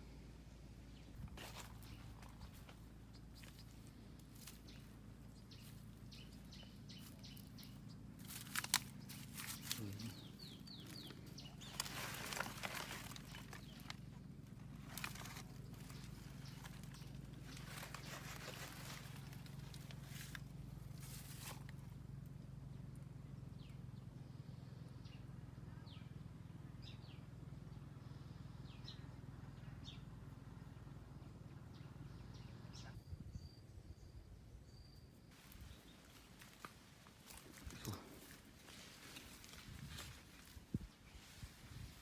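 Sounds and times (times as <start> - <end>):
faint low hum: 0.0 - 42.0
small birds chirping: 0.0 - 42.0
rustling: 1.1 - 4.9, 5.6 - 21.8, 35.4 - 42.0.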